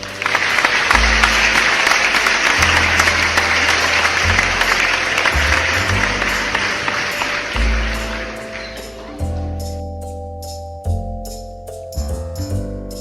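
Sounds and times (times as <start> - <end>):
applause: 0.0 - 8.8
background music with bass line: 0.0 - 13.0.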